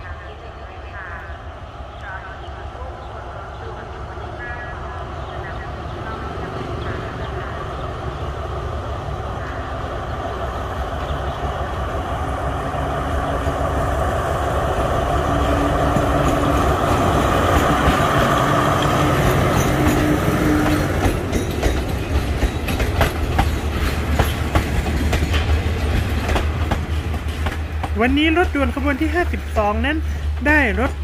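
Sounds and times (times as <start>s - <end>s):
diesel locomotive passing: 0.0s - 31.0s
wheels clicking over rail joints: 15.8s - 31.0s.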